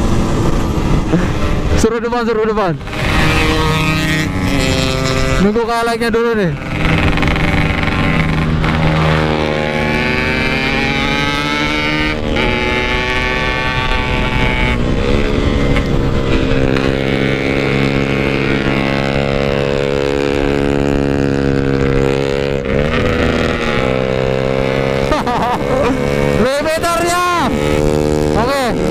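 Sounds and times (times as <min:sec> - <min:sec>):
two-stroke engine accelerating: 0:00.0 - 0:28.9.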